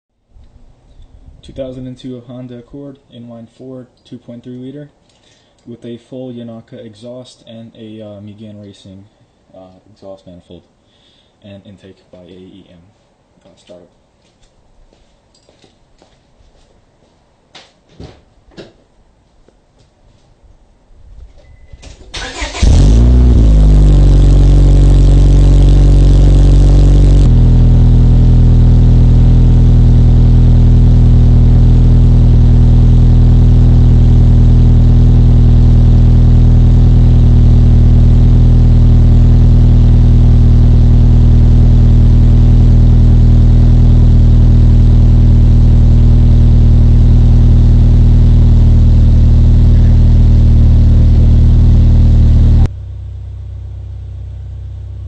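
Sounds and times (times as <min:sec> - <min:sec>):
car engine starting and idling: 0:22.0 - 0:55.0.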